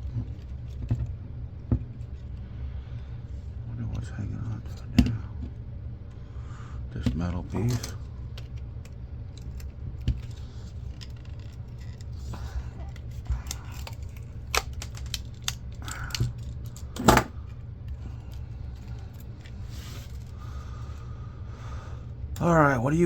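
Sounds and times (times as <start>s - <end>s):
parts clicking and rattling: 7.5s - 20.4s.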